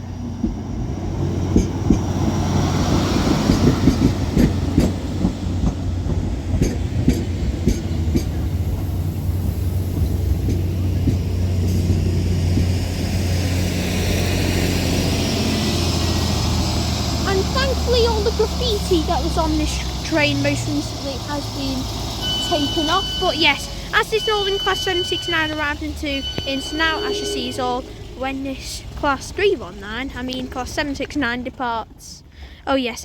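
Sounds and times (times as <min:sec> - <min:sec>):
train diesel engine drone: 0:00.0 - 0:33.0
wheels clicking over rail joints: 0:00.2 - 0:13.3, 0:15.1 - 0:26.6, 0:27.8 - 0:32.9.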